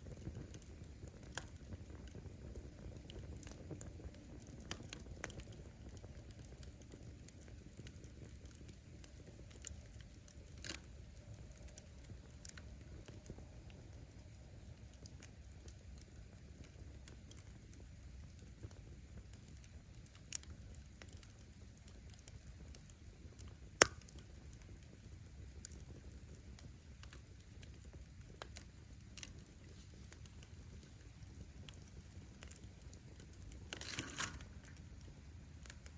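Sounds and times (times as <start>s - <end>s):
firewood crackling and popping: 0.0s - 35.9s
rumble of fire flames: 0.0s - 35.9s.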